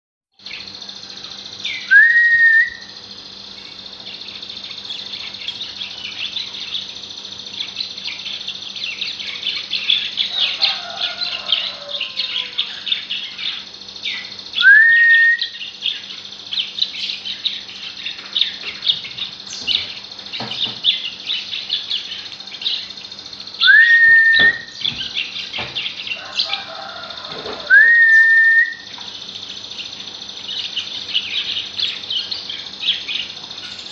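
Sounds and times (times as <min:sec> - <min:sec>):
songbird chirping: 0:00.4 - 0:33.9
rising bird whistle: 0:01.6 - 0:03.0, 0:14.1 - 0:16.0, 0:23.6 - 0:25.0, 0:27.6 - 0:29.0.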